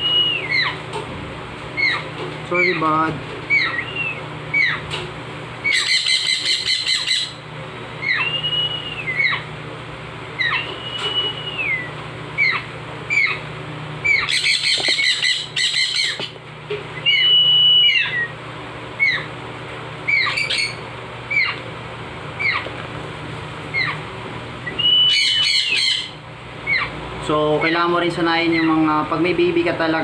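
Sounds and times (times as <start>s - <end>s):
baby parrot chirping: 0.0s - 0.8s, 1.8s - 2.9s, 3.5s - 4.9s, 5.6s - 7.4s, 8.0s - 9.5s, 10.4s - 16.4s, 17.0s - 18.3s, 19.0s - 19.3s, 20.1s - 21.6s, 22.4s - 22.7s, 23.7s - 24.0s, 24.7s - 27.0s, 27.6s - 28.8s
parrot whistles: 0.0s - 0.8s, 3.5s - 4.8s, 5.6s - 7.4s, 8.0s - 9.5s, 10.4s - 13.4s, 14.0s - 16.2s, 17.0s - 18.3s, 24.6s - 26.9s
parrot squawks: 0.3s - 0.8s, 1.8s - 2.9s, 3.5s - 4.9s, 5.6s - 7.4s, 8.0s - 8.4s, 9.0s - 9.5s, 10.4s - 13.4s, 14.0s - 16.3s, 17.0s - 18.3s, 19.0s - 19.3s, 20.1s - 21.6s, 22.4s - 22.7s, 23.7s - 24.0s, 24.7s - 27.0s.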